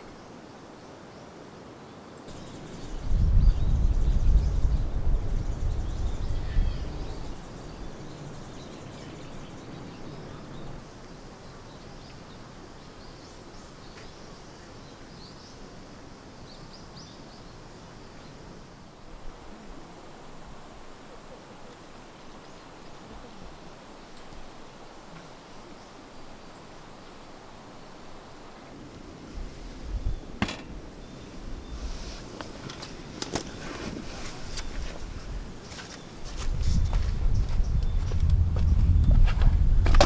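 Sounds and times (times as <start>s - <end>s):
wind buffeting microphone: 2.3s - 10.8s, 28.7s - 40.0s.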